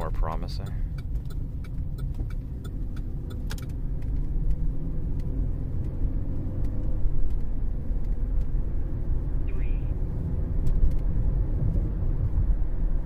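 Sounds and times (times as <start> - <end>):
car cabin road rumble: 0.0 - 13.0
light ticks: 0.5 - 6.0.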